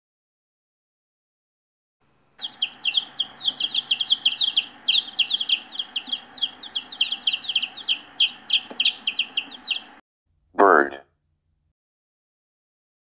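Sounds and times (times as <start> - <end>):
songbird chirping: 2.1 - 10.0.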